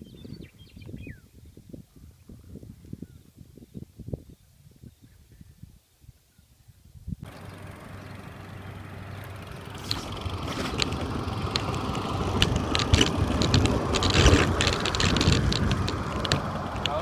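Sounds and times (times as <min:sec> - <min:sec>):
wind and road noise: 0:00.0 - 0:17.0
vehicle engine humming: 0:07.2 - 0:17.0
sharp clicks: 0:09.2 - 0:17.0.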